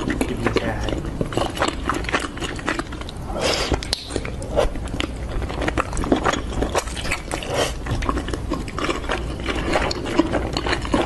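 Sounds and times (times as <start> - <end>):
person chewing and smacking: 0.0 - 11.0.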